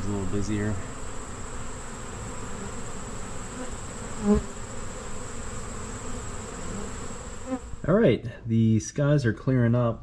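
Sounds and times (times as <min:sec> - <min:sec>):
bee buzzing close by: 0:00.0 - 0:07.9
honey bees buzzing: 0:00.0 - 0:07.9.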